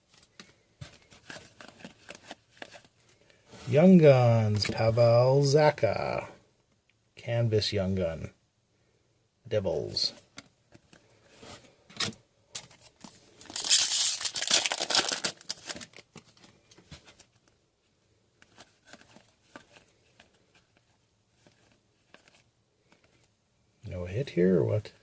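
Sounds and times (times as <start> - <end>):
cards rustling and clicking: 0.0 - 3.4, 11.9 - 17.6, 18.4 - 23.3
foil pack tearing: 13.4 - 16.0.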